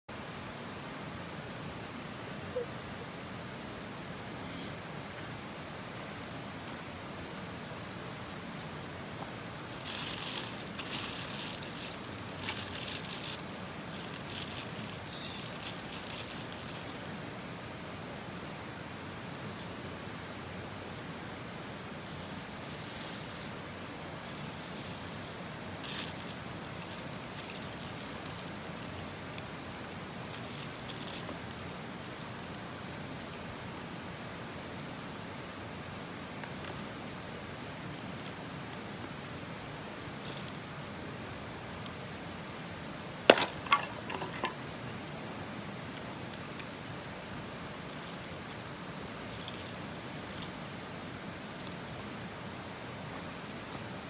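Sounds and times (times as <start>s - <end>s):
outdoor background hiss: 0.1s - 54.0s
hard objects knocking together: 43.3s - 44.6s.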